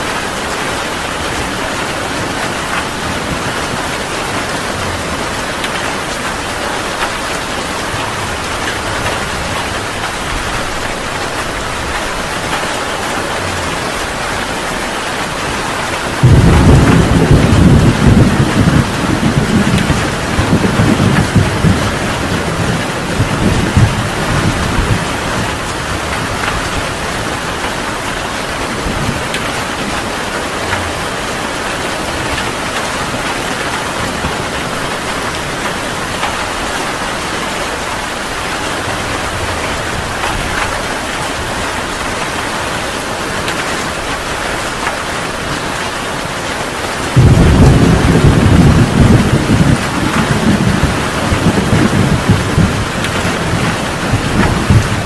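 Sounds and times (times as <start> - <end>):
heavy rain: 0.0 - 55.0
low rumble of thunder: 16.0 - 27.8, 47.1 - 55.0.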